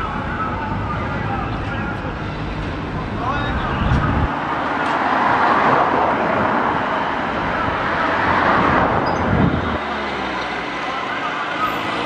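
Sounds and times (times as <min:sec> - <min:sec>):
train passing at speed: 0:02.4 - 0:10.8
low rumble: 0:03.0 - 0:04.4.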